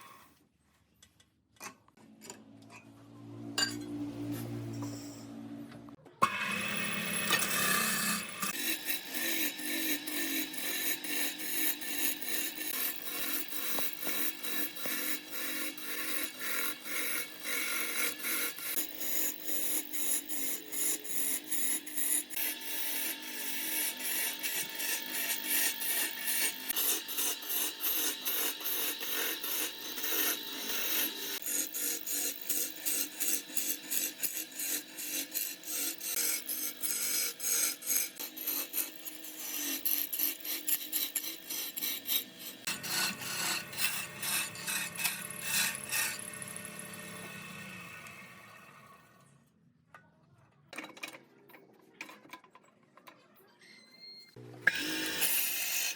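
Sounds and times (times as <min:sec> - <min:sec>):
wood being sanded: 0:08.5 - 0:47.3.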